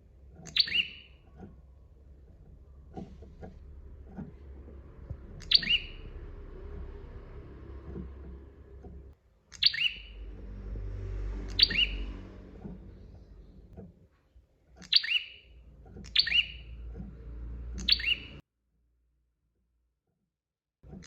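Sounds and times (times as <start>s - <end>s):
low background rumble: 0.0s - 18.4s
bird sharp calls: 0.4s - 1.5s, 5.3s - 6.3s, 9.5s - 10.3s, 11.4s - 13.4s, 14.8s - 16.9s, 17.8s - 18.4s.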